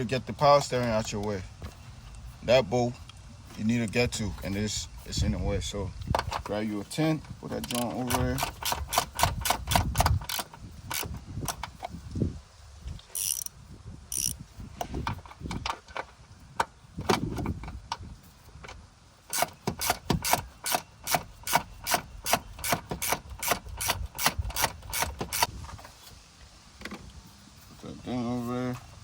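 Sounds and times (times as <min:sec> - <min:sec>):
ratchet wrench clicking: 0:07.6 - 0:11.8, 0:13.1 - 0:14.4, 0:19.3 - 0:25.5.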